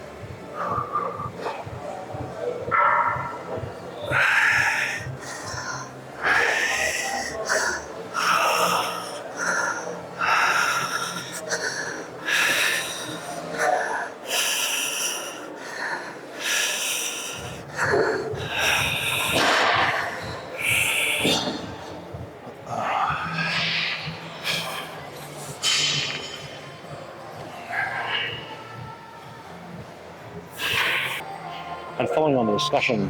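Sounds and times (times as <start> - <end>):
man breathing hard: 3.5 - 29.0, 30.4 - 31.2.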